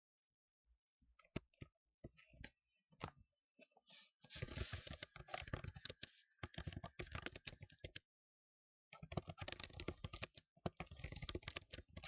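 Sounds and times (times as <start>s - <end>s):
fast typing on keyboard: 4.6s - 8.0s, 9.0s - 12.0s.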